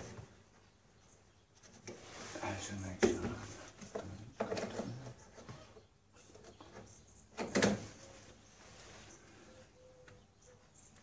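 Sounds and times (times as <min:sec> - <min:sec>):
rustle and scrape: 0:01.6 - 0:07.0, 0:07.8 - 0:09.5.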